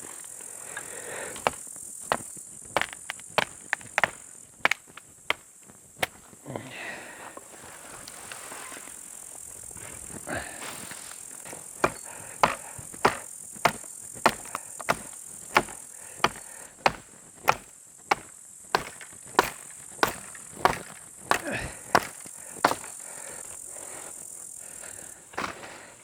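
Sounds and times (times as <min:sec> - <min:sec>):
tool striking sharp blows: 0:11.8 - 0:23.0.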